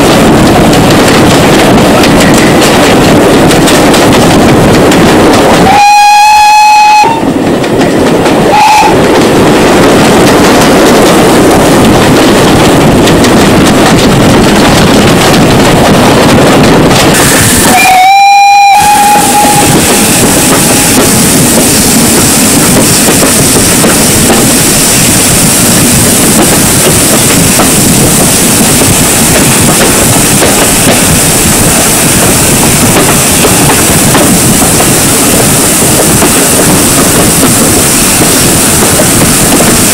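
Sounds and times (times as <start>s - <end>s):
train running on rails: 0.0s - 39.9s
steam locomotive whistle: 5.6s - 7.3s, 8.5s - 9.0s, 17.6s - 19.8s.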